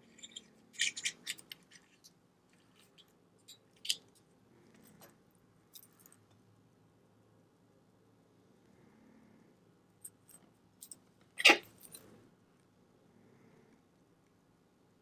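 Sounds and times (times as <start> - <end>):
clicks of small watch parts: 2.8 - 4.1.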